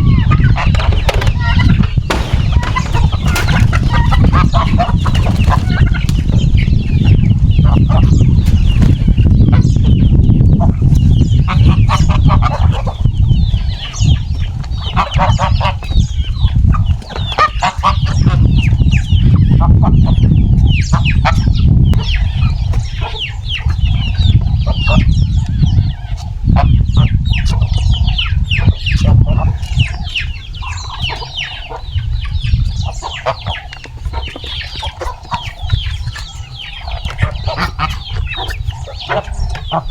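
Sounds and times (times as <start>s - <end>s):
chickens clucking: 0.0s - 39.9s
loud steady low rumble: 0.1s - 8.4s.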